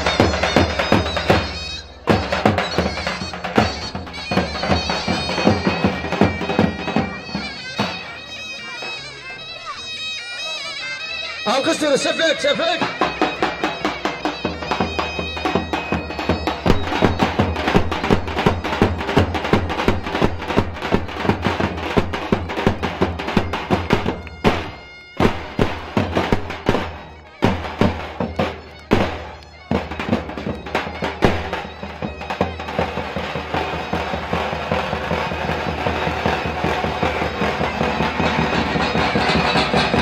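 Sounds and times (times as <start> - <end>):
held melody line: 0.0 - 40.0
fast drum beat: 12.8 - 40.0.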